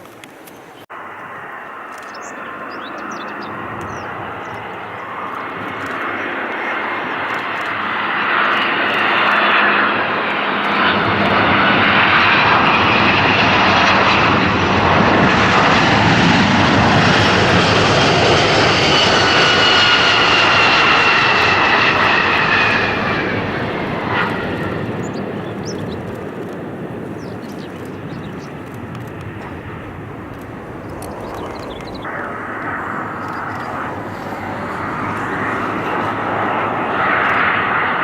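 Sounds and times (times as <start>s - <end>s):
airliner engine noise: 0.0s - 38.0s
falling whining tones: 28.6s - 37.6s.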